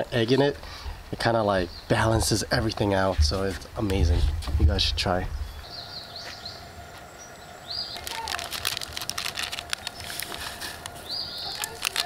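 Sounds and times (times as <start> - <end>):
bird calling: 5.4 - 12.0
dense patter of small clicks: 8.0 - 12.0.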